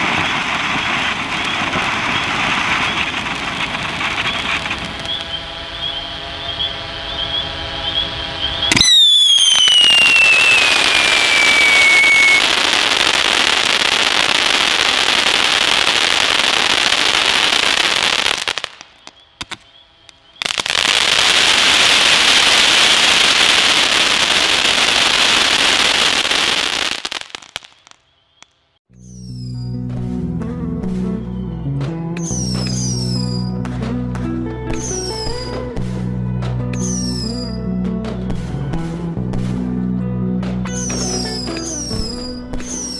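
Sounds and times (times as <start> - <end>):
firework whistle falling in pitch: 0.0 - 26.9, 40.8 - 42.9
firework crackling spray: 0.0 - 28.0.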